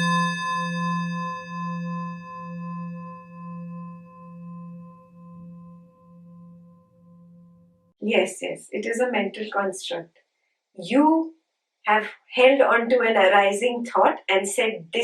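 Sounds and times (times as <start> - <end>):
singing bowl ringing: 0.0 - 8.0.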